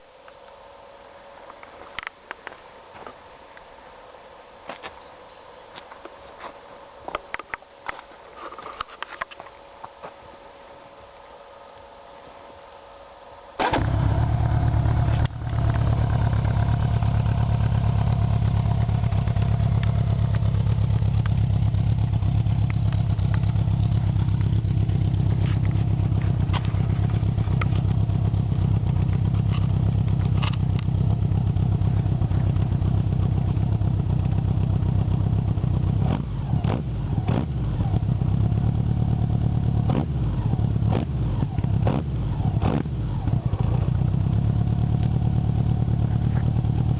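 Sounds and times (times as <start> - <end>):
motorcycle engine starting and running: 13.6 - 46.9.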